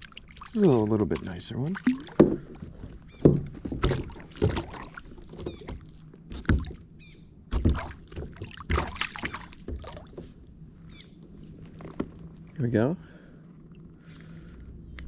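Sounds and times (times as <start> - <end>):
knocks and bumps against kayak: 1.1 - 10.5.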